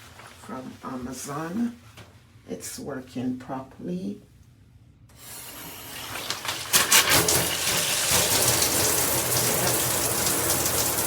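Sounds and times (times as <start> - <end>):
shower head spraying water: 5.2 - 11.0.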